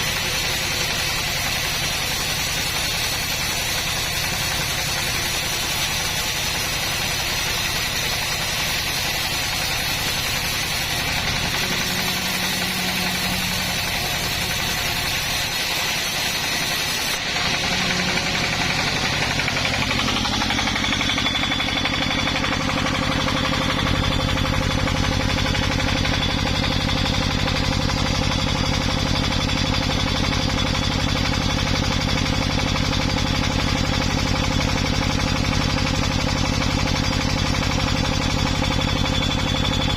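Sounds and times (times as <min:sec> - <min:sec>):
engine running under load: 0:00.0 - 0:39.9.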